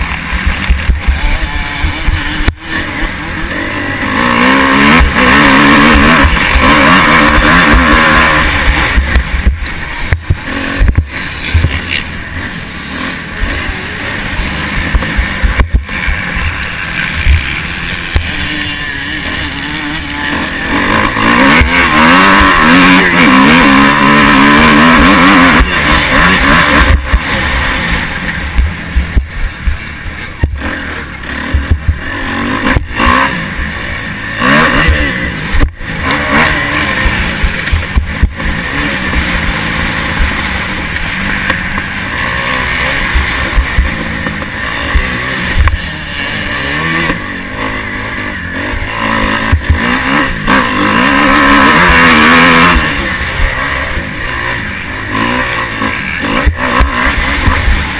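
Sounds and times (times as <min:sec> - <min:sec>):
motocross bike engine revving: 0:00.0 - 0:57.9
sharp knocks from rough track: 0:08.7 - 0:12.1, 0:31.5 - 0:32.0.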